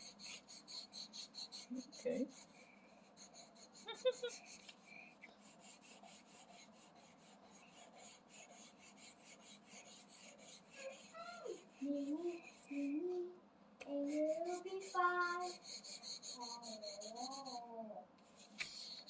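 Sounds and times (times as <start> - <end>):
crayon scratching on paper: 0.0 - 4.8, 5.4 - 13.0, 13.9 - 19.0
child humming: 10.6 - 18.1.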